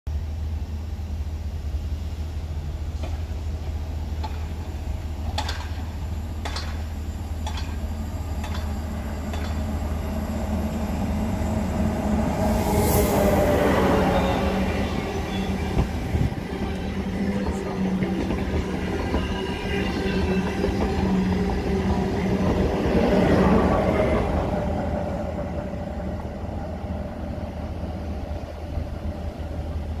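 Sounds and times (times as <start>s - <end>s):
passenger train passing: 0.1s - 30.0s
faint rail clicks: 4.2s - 4.6s, 5.2s - 9.7s.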